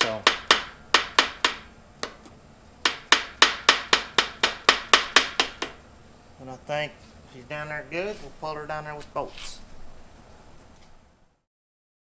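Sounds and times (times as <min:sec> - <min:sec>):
hammer tapping metal: 0:00.0 - 0:02.2, 0:02.8 - 0:05.8.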